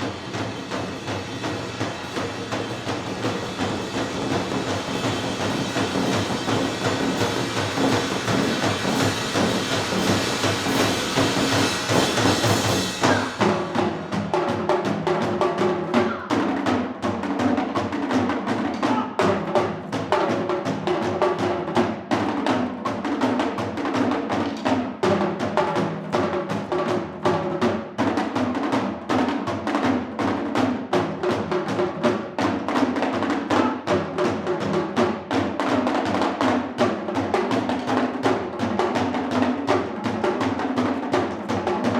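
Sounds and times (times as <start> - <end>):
dense hissy percussion wash: 0.0 - 14.6
fast drum strokes: 0.0 - 41.9.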